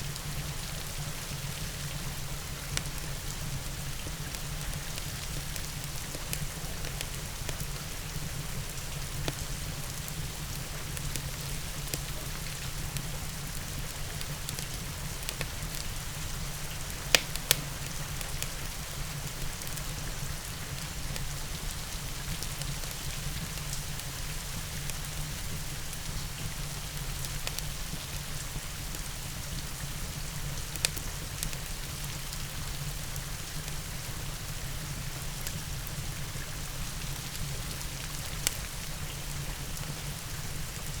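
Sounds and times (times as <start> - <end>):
rain falling: 0.1 - 41.0
fireplace crackles: 8.6 - 21.3, 37.3 - 38.9.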